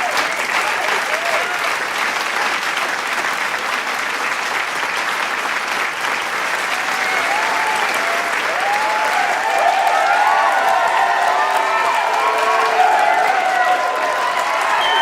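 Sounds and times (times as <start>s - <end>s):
voices cheering: 0.0s - 1.8s, 6.6s - 15.0s
crowd applauding: 0.0s - 15.0s.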